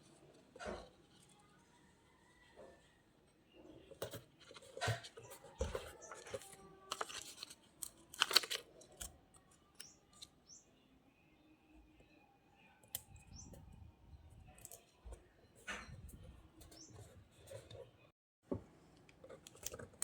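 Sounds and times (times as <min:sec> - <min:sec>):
paper rustling and scraping: 0:04.0 - 0:09.1.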